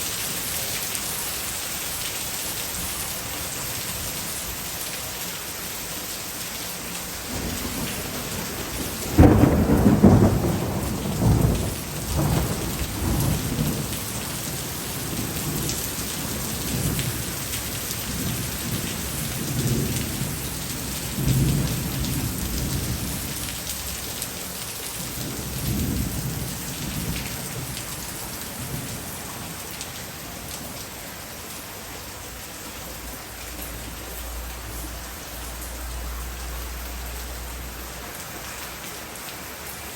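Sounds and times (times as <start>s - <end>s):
heavy rain pouring: 0.0s - 39.9s
thunder rumbling: 7.2s - 23.4s.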